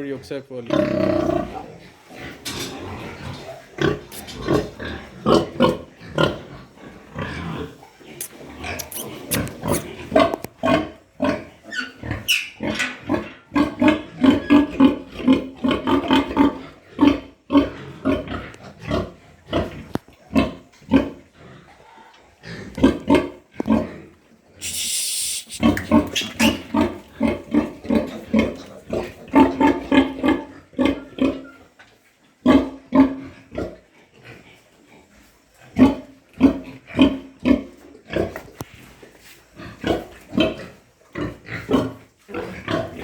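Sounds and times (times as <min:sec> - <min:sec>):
piglets grunting: 0:02.9 - 0:06.5, 0:07.1 - 0:10.9, 0:24.6 - 0:28.1
short hissing noise: 0:08.2 - 0:09.9, 0:24.6 - 0:25.9.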